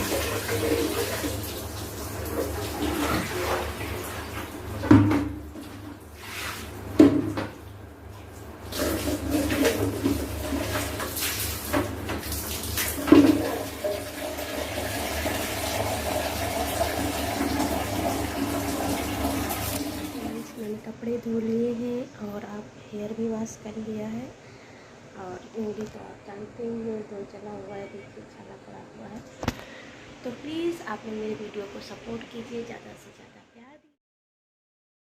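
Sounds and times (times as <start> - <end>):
water running: 0.0 - 20.8.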